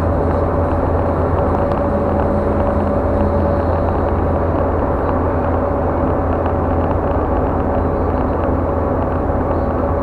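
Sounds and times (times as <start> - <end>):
car cabin road rumble: 0.0 - 10.0
thin steady whine: 0.0 - 10.0.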